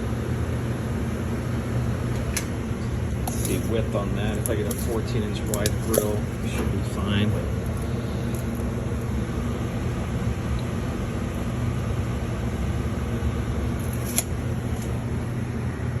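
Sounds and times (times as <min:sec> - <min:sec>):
machinery humming and rumbling: 0:00.0 - 0:16.0.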